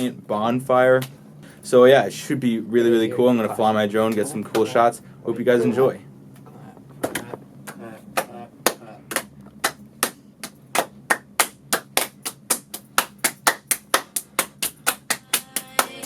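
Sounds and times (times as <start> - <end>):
faint low hum: 0.0 - 16.0
sharp hand claps: 7.0 - 16.0.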